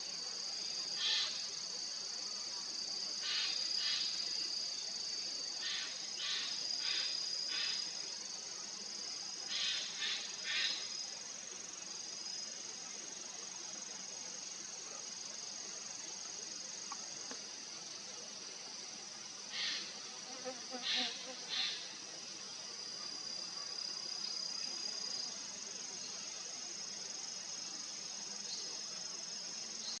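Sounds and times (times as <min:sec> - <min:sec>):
insects trilling: 0:00.0 - 0:30.0
raspy insect bursts: 0:18.8 - 0:22.0.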